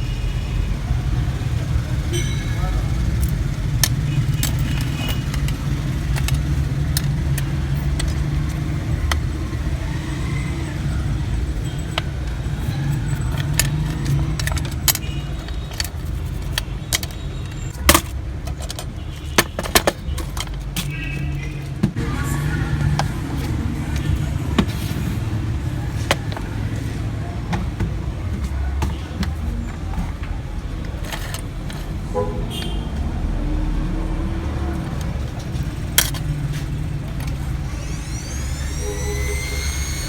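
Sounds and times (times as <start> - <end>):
small metal tools clicking: 3.1 - 9.3, 12.0 - 21.0.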